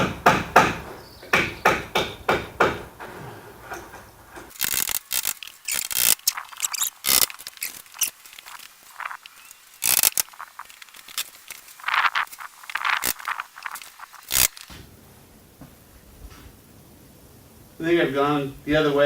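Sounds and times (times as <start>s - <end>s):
wire mesh scraping and rattling: 2.5s - 14.7s.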